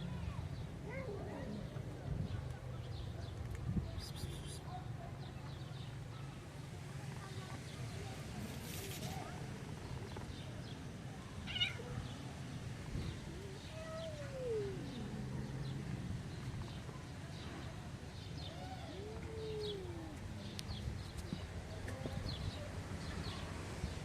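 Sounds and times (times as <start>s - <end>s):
cat meowing: 11.5s - 11.8s.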